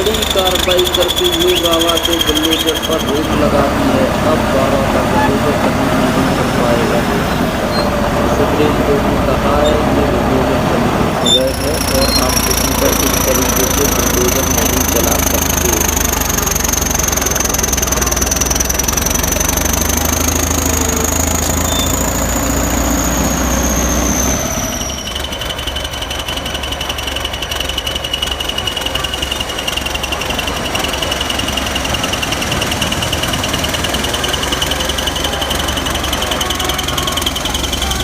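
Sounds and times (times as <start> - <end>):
high wavering whine: 0.0 - 26.3
heavy machinery engine drone: 0.0 - 38.0
machine noise with fine ticking: 0.0 - 38.0.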